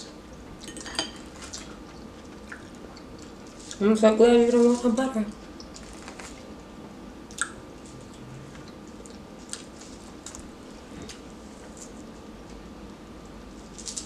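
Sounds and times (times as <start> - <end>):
chewing and mouth smacks: 1.4 - 3.8, 7.3 - 10.5.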